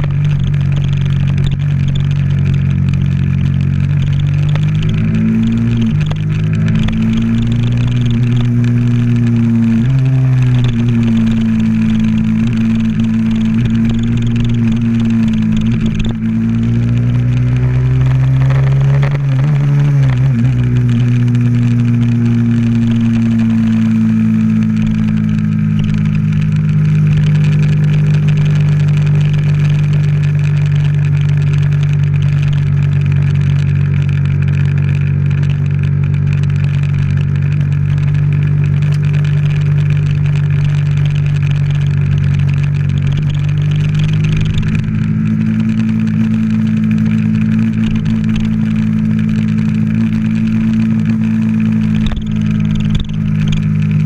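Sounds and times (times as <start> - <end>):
motorcycle engine cruising: 0.0 - 54.0
wind noise: 36.7 - 54.0.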